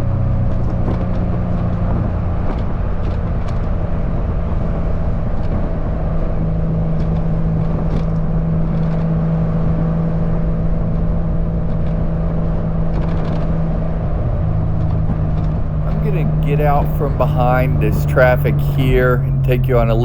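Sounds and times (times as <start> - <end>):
car engine cruising: 14.2 - 20.0.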